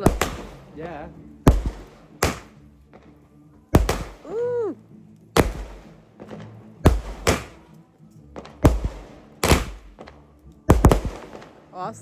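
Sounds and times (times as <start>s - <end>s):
fireworks bangs with echo: 0.0s - 4.6s, 5.4s - 7.8s, 8.4s - 12.0s.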